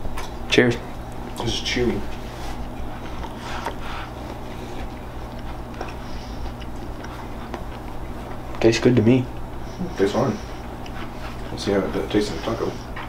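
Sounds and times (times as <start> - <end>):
steady low hum: 0.0 - 13.0
person chewing: 2.2 - 8.6, 9.3 - 9.8, 10.4 - 11.6.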